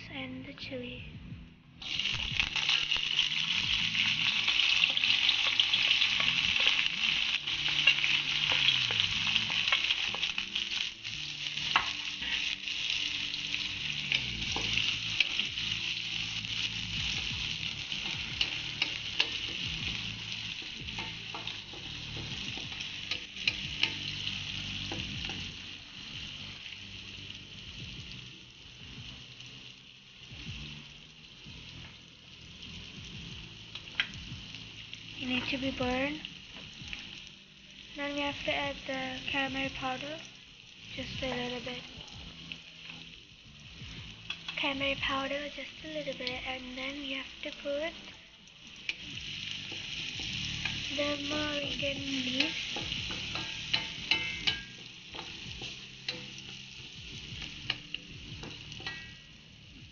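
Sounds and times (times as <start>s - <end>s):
onions sizzling in oil: 1.8s - 59.9s
wooden spatula scraping wok: 11.6s - 24.0s.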